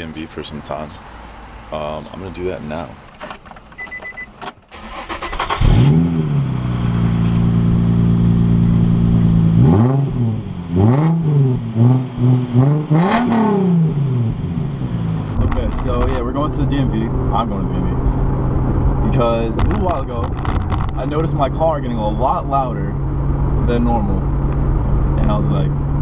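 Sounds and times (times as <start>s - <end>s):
car engine starting and idling: 1.9s - 26.0s
short beep: 3.8s - 4.4s
car engine revving: 4.7s - 26.0s.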